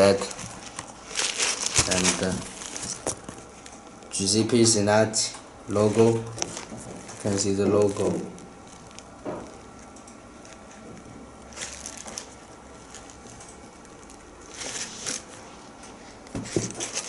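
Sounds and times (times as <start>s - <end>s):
rustles of sneaker being handled: 14.5s - 17.0s.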